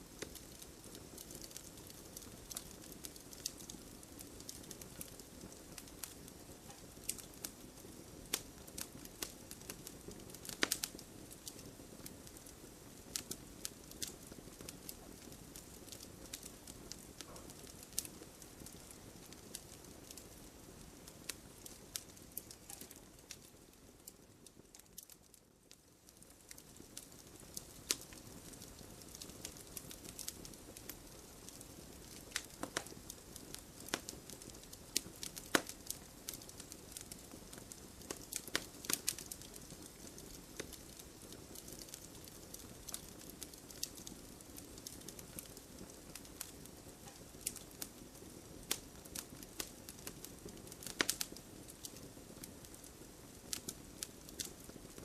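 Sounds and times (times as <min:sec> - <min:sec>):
campfire crackling: 0:00.0 - 0:55.0.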